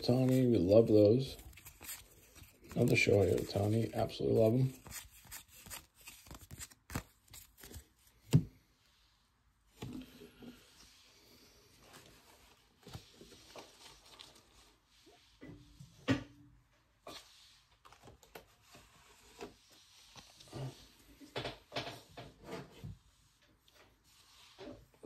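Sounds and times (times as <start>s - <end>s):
cards rustling: 0.0s - 8.5s.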